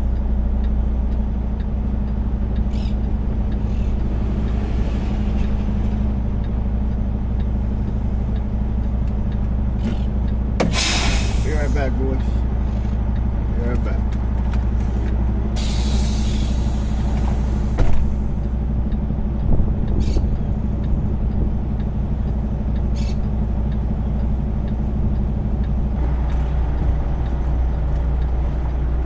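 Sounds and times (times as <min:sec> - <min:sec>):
diesel truck engine idling: 0:00.0 - 0:29.0
hiss: 0:10.7 - 0:11.5, 0:15.6 - 0:17.8.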